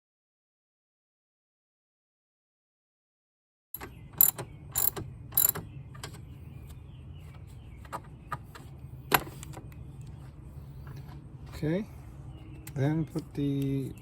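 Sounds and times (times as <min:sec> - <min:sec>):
ratchet wrench clicking: 0:03.8 - 0:05.6.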